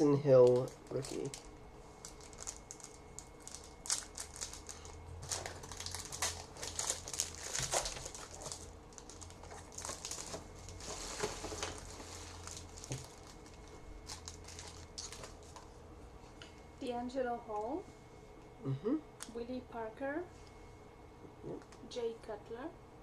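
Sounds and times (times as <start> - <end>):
card packaging rustling and crinkling: 0.3 - 15.7.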